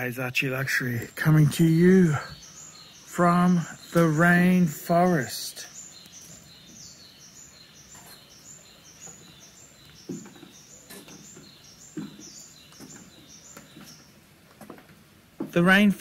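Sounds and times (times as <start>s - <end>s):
faint bird chirping: 0.0s - 16.0s
soft thuds: 10.0s - 14.0s.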